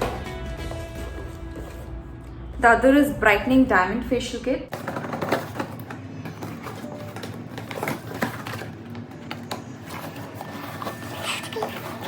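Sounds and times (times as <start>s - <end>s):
packaging taps and rustles: 4.7s - 12.0s.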